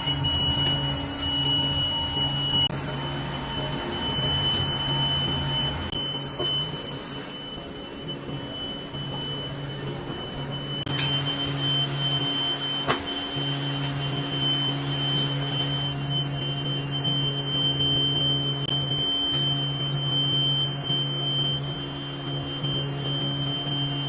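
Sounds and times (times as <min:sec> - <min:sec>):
machine humming and whining: 0:00.0 - 0:24.0.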